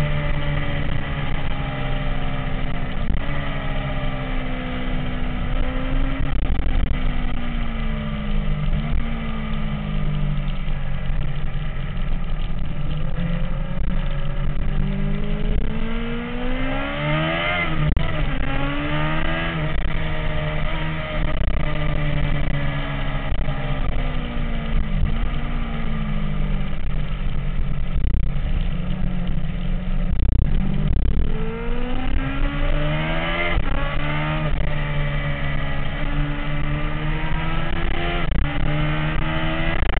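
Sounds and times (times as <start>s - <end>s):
motorcycle engine rising and falling: 0.0s - 39.9s.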